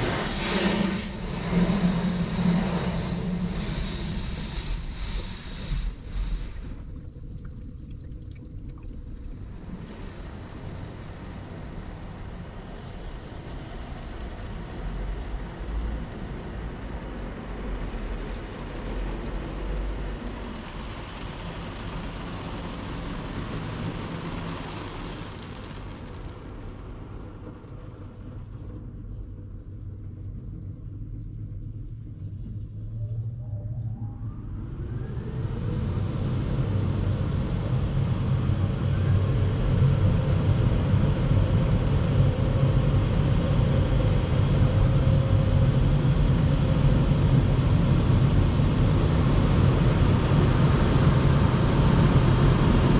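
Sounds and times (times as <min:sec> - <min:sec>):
rushing hiss of water spray: 0:00.0 - 0:06.8
car wash machine rumble: 0:00.0 - 0:07.8, 0:09.0 - 0:31.0, 0:34.4 - 0:52.9.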